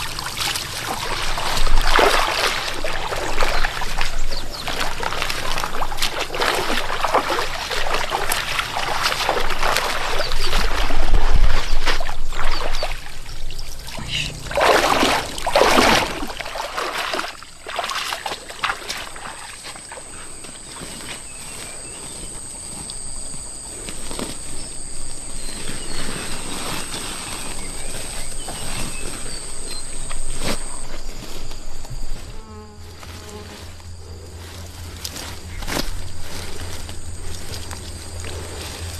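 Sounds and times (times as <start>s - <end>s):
water splashing and sloshing: 0.0s - 32.3s, 33.0s - 38.9s
water trickling: 12.3s - 20.3s
high-pitched insect drone: 12.5s - 38.9s.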